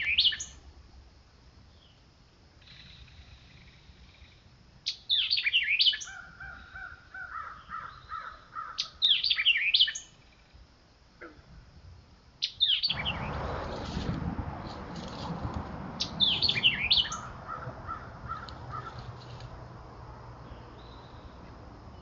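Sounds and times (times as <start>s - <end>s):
songbird singing: 0.0s - 0.7s, 1.6s - 11.4s, 12.3s - 22.0s
rustling noise: 12.9s - 16.8s, 18.6s - 19.7s.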